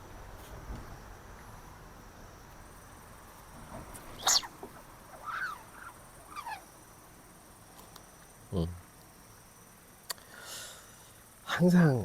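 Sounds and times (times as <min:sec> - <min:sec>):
animal calls sliding down in pitch: 0:04.2 - 0:06.7.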